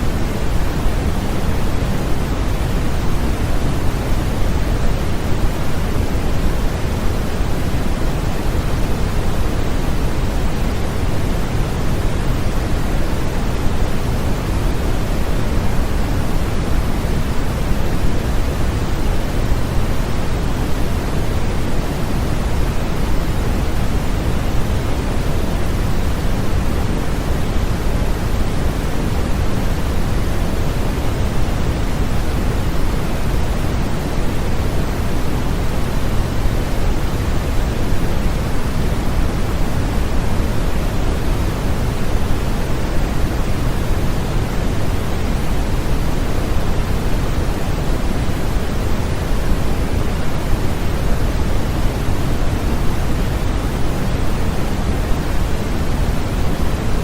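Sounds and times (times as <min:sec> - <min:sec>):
pink noise: 0:00.0 - 0:57.0.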